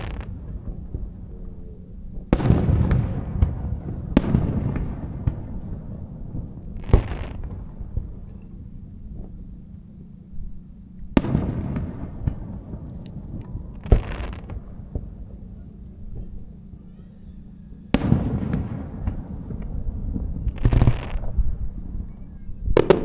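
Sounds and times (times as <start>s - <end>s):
firework shells bursting: 0.0s - 0.4s
fireworks crackling: 0.0s - 8.5s, 11.2s - 23.0s.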